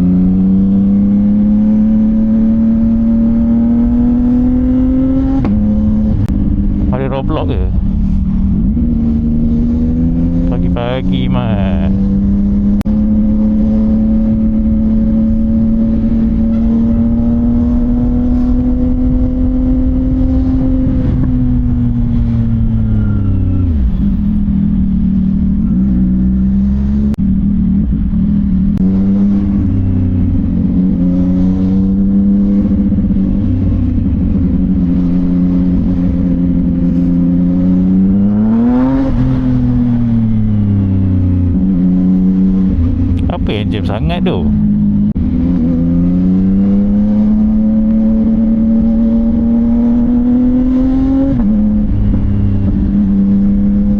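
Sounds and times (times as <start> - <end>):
motorcycle engine revving: 0.0 - 6.9, 44.5 - 53.9.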